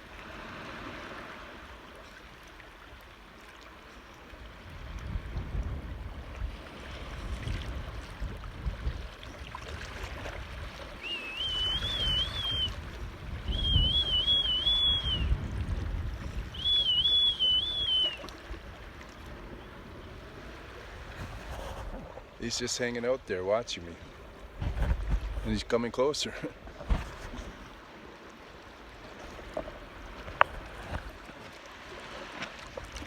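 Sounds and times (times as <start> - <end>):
water sloshing: 8.9 - 15.1, 16.5 - 22.8, 23.8 - 33.0
short warbling whistles: 11.0 - 12.8, 13.4 - 15.4, 16.5 - 18.4.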